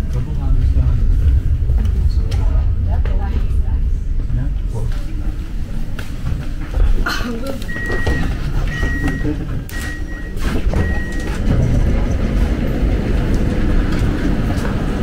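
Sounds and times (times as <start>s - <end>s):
train rumbling: 0.0s - 15.0s
high beeps: 7.7s - 11.4s.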